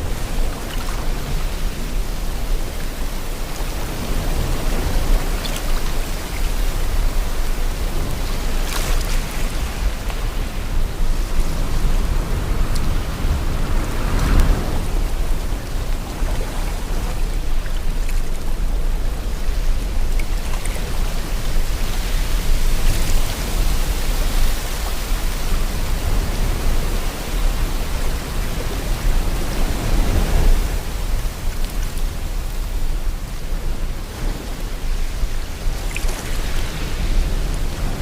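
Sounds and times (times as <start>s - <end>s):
sea waves washing in: 0.0s - 38.0s
wind: 0.0s - 38.0s.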